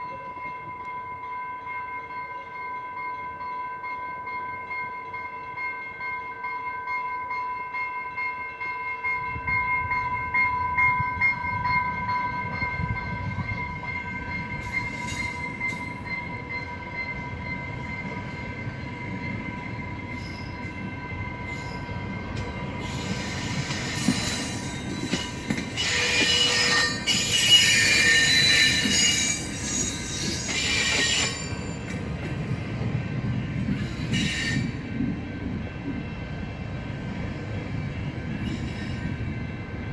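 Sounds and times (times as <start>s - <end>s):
train rumble: 9.0s - 39.9s
wheels and brakes squealing: 14.6s - 18.3s, 22.8s - 32.0s, 33.7s - 34.8s, 38.3s - 39.2s.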